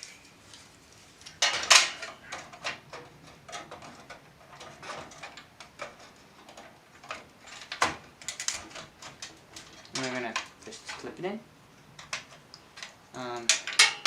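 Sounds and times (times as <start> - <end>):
handling clicks and rustles: 0.0 - 14.0.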